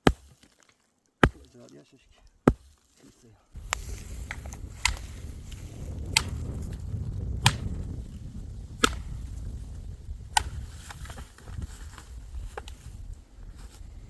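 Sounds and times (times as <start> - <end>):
dry wood cracking: 0.0 - 12.8
steady low rumble: 3.6 - 11.0.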